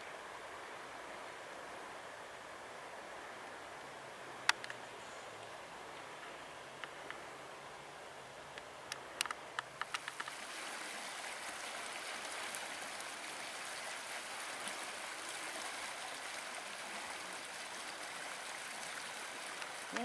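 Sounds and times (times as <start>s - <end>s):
flowing water rushing: 0.0s - 20.0s
sharp clicks: 4.5s - 4.8s, 8.6s - 10.4s.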